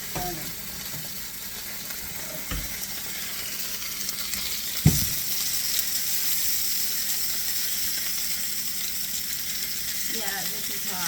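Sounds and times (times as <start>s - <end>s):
chicken sizzling in a pan: 0.0s - 11.0s
dull knock: 4.8s - 5.2s.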